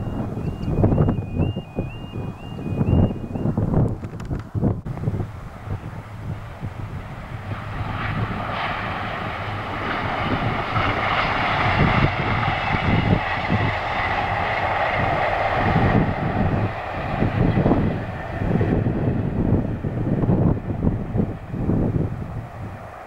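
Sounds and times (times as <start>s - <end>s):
wind buffeting microphone: 0.0s - 23.0s
diesel train passing: 4.9s - 23.0s.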